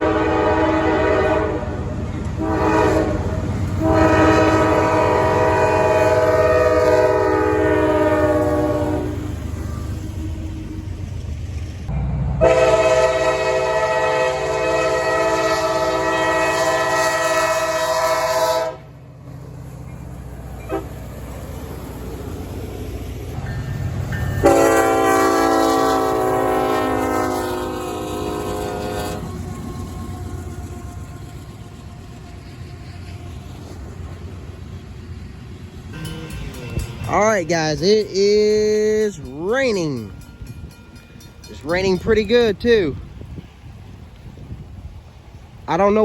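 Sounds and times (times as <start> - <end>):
locomotive air horn blasts: 0.0 - 1.8, 2.4 - 9.3, 12.4 - 18.9, 20.6 - 21.0, 24.4 - 31.4
passing train rumble: 0.0 - 46.0.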